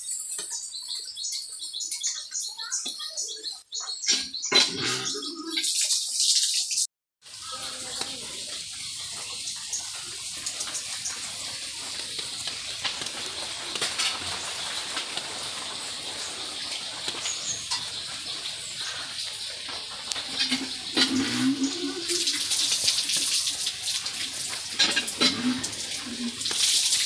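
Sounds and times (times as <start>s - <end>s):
rain falling: 7.2s - 27.0s.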